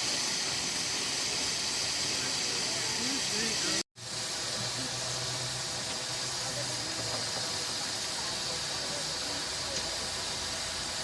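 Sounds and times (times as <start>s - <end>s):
steam hissing: 0.0s - 11.0s.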